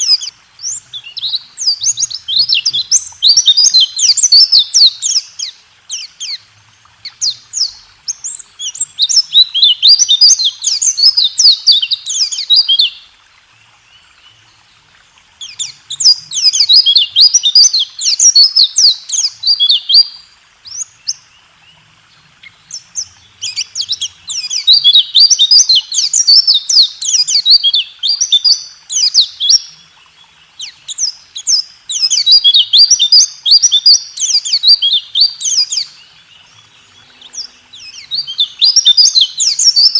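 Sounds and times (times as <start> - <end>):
bird singing rapid high notes: 36.6 - 39.9.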